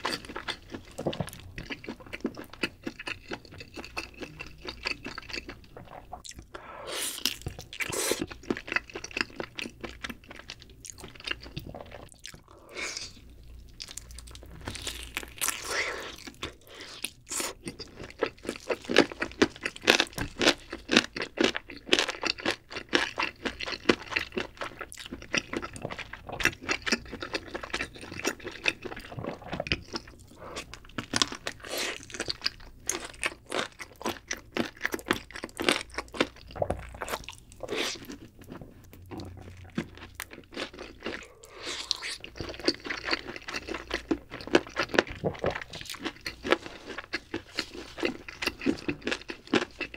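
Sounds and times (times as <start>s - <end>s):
crunchy bites and chewing: 13.8s - 49.9s.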